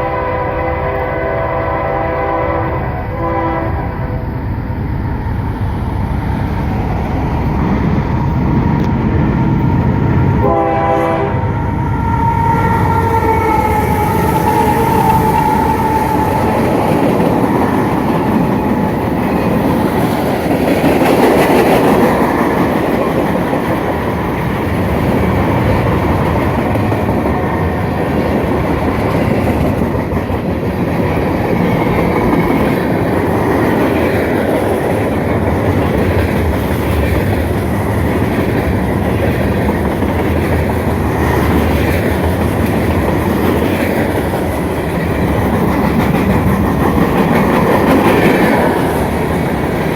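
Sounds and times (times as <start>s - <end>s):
locomotive horn: 0.0s - 4.3s, 10.4s - 16.6s
train wheels clacking over rail joints: 13.0s - 49.9s.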